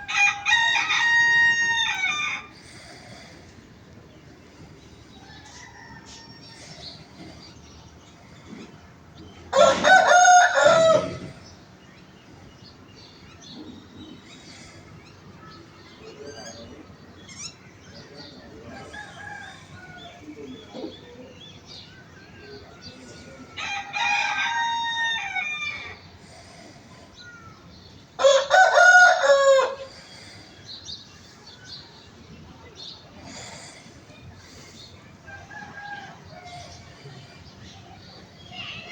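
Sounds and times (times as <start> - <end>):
rooster crowing: 0.0 - 2.6, 5.2 - 6.9, 9.5 - 11.4, 18.7 - 20.3, 22.8 - 26.0, 28.2 - 29.9.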